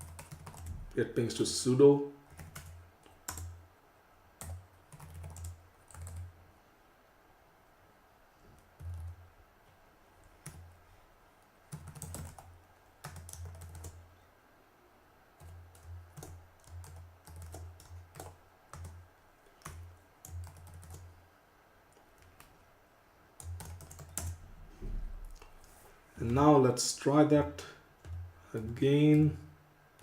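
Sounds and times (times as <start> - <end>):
computer keyboard typing: 0.0 - 0.7, 2.3 - 3.6, 4.4 - 6.3, 8.6 - 9.2, 11.7 - 14.0, 15.4 - 19.0, 19.6 - 21.0, 23.4 - 24.4.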